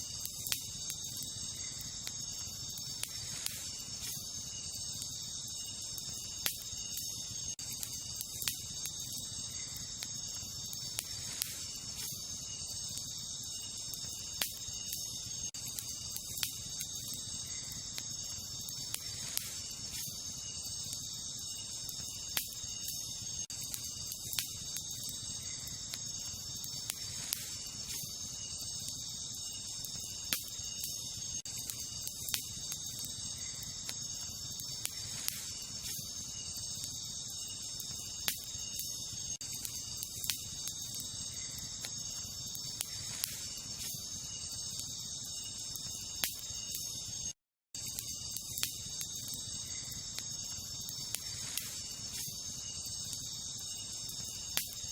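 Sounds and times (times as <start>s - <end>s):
campfire crackling and popping: 0.0s - 54.9s
night insects chorus: 0.0s - 54.9s.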